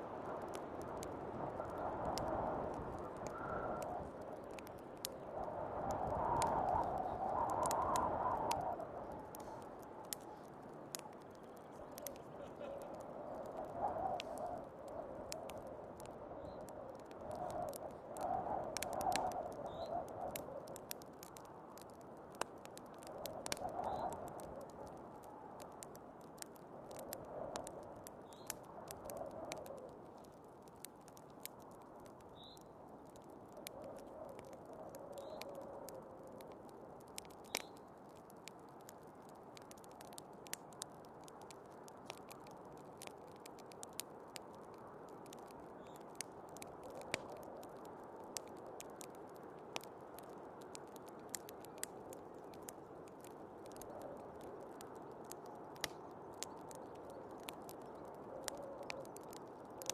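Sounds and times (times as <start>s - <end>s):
rushing blizzard wind: 0.0s - 31.9s
wood fire crackling and popping: 0.0s - 59.9s.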